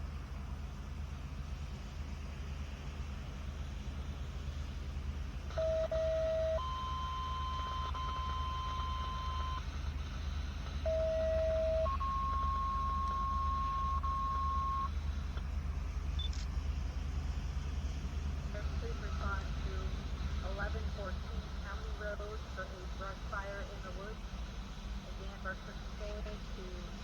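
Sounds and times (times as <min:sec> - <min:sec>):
two-tone paging tones over radio: 0:05.5 - 0:15.4, 0:18.6 - 0:24.2, 0:25.0 - 0:27.0.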